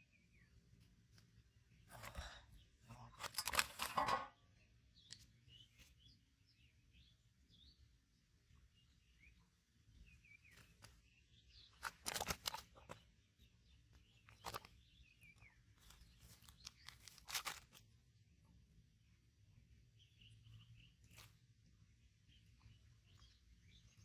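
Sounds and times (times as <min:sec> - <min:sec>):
faint bird chirps: 0:00.0 - 0:24.0
crackling rustle: 0:03.1 - 0:04.0, 0:10.4 - 0:13.0, 0:14.0 - 0:17.9.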